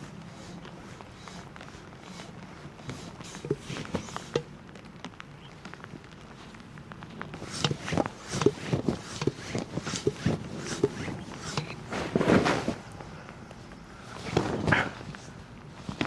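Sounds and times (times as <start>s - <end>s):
short knocks and crunches: 7.0s - 16.0s.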